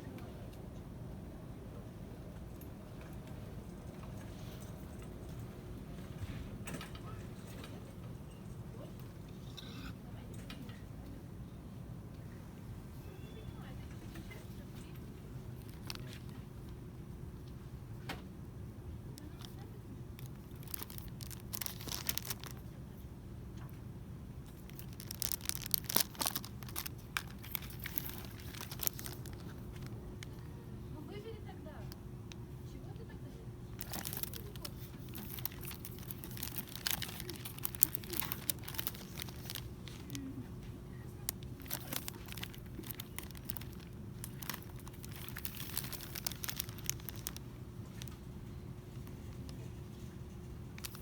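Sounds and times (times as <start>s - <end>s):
low background hum: 0.0s - 51.0s
plastic packaging crinkling: 15.5s - 16.4s, 20.2s - 22.7s, 24.4s - 30.5s, 33.7s - 40.4s, 41.2s - 48.3s, 50.7s - 51.0s.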